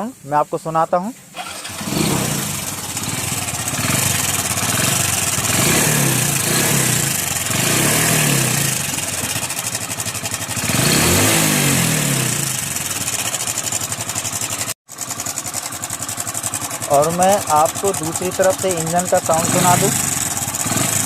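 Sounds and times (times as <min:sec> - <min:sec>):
motorcycle engine revving: 0:01.3 - 0:21.0
timing chain rattling: 0:15.4 - 0:20.9.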